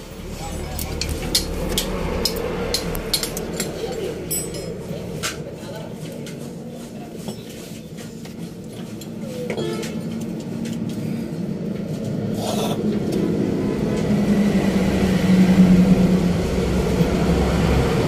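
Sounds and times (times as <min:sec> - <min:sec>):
vehicle engine running: 0:00.0 - 0:06.9.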